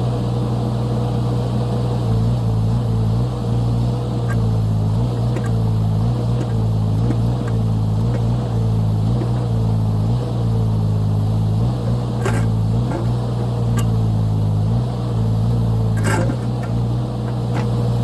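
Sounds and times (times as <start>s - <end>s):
diesel engine running under load: 0.0s - 18.0s
sharp metallic clanks: 5.1s - 5.7s, 6.3s - 9.7s, 11.8s - 14.2s, 15.9s - 17.8s.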